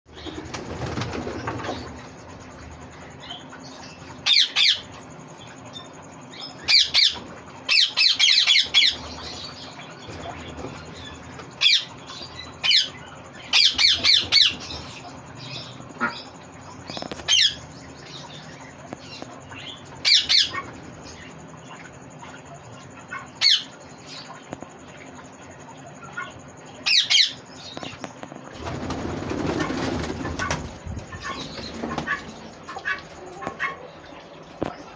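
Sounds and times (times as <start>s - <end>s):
faint steady hum: 0.1s - 34.9s
parakeet squawking: 4.2s - 4.9s, 6.6s - 9.6s, 11.6s - 14.8s, 19.6s - 20.7s.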